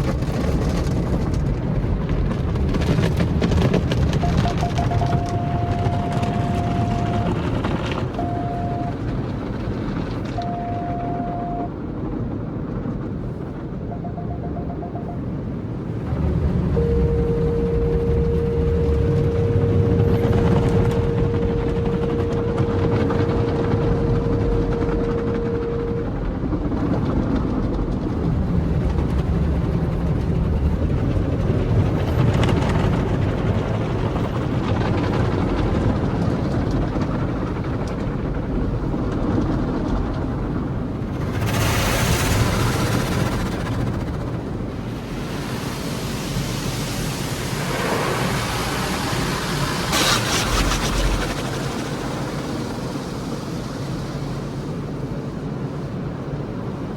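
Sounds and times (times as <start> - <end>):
car wash machinery rumbling: 0.0 - 56.9
steady single tone: 4.2 - 7.5, 8.1 - 9.1, 10.4 - 11.7, 13.8 - 15.4, 16.7 - 26.2
water spraying on car body: 44.4 - 55.9.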